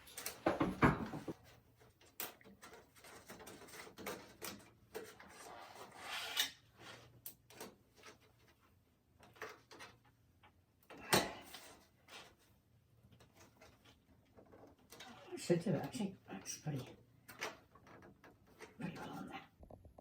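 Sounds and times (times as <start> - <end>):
rubbing scrapes: 5.2 - 7.1.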